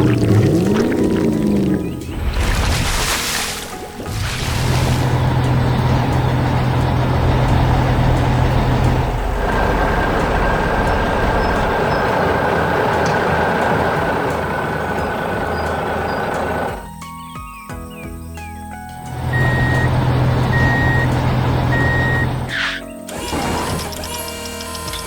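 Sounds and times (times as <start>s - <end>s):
heavy vehicle engine drone: 4.0s - 16.8s, 19.1s - 25.0s.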